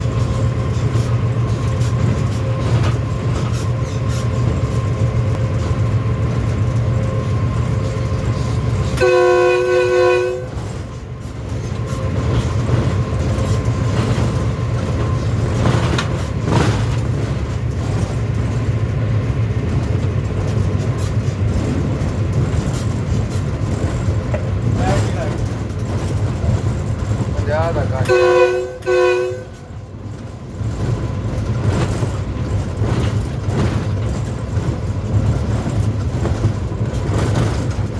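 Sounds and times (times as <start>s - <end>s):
train wheels rumbling on rails: 0.0s - 37.9s
locomotive horn blast: 7.2s - 11.0s, 27.6s - 29.8s.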